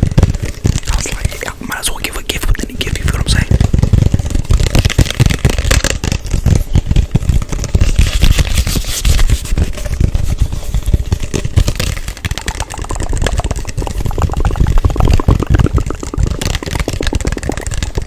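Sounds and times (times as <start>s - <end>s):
hands tapping on microphone: 0.0s - 18.0s
rubbing and scratching: 0.0s - 18.0s
low thumping: 9.6s - 18.0s.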